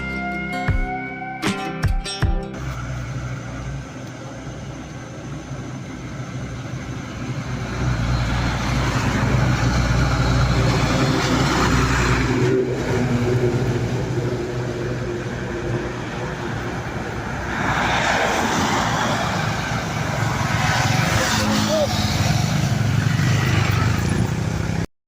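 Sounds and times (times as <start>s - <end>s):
road and wind noise: 2.5s - 24.9s
motorcycle engine running: 22.5s - 24.8s.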